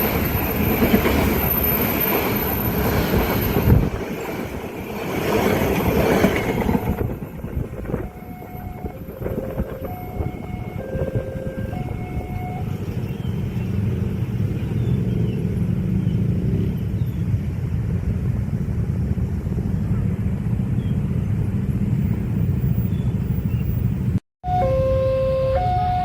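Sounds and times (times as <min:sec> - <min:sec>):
train wheels rumbling on rails: 0:00.0 - 0:20.6
train horn: 0:07.9 - 0:12.7, 0:24.4 - 0:26.0.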